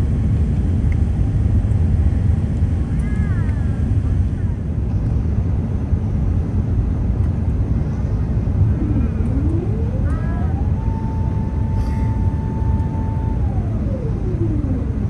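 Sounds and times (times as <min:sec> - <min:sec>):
airplane cabin rumble: 0:00.0 - 0:15.0
rising whine: 0:08.2 - 0:15.0.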